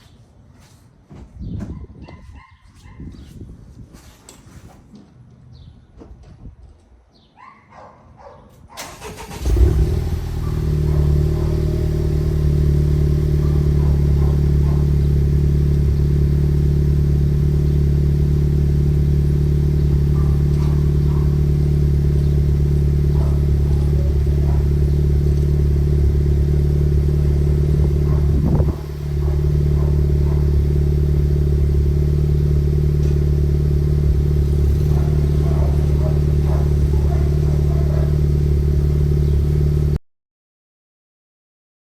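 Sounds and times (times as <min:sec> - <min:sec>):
starter motor cranking: 0:08.8 - 0:09.9
car engine cold idle: 0:08.8 - 0:39.3.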